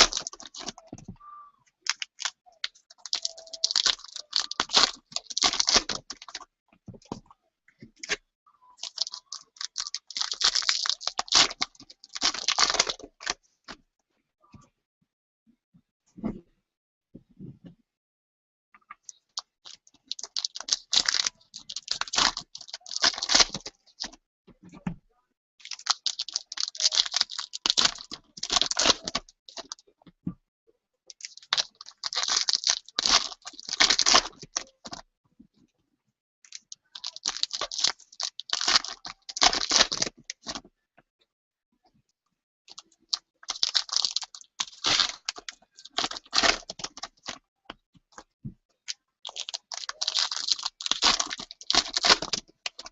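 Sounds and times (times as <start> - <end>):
card packs tearing and crinkling: 0.0 - 0.8, 1.9 - 2.4, 3.0 - 6.4, 8.8 - 13.4, 19.7 - 23.7, 25.6 - 29.8, 31.2 - 34.6, 37.0 - 40.6, 42.7 - 47.3, 49.3 - 52.9.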